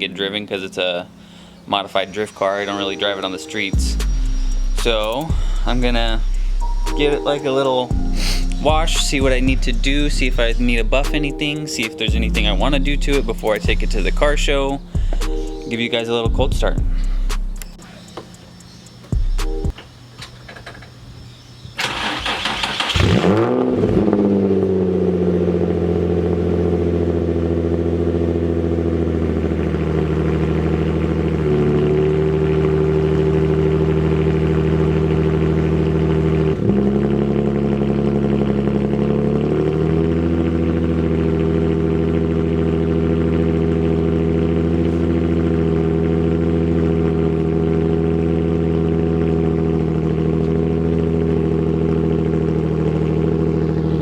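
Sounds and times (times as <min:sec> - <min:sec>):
car engine idling: 0:00.0 - 0:19.8, 0:24.0 - 0:54.0
starter motor cranking: 0:21.8 - 0:23.4.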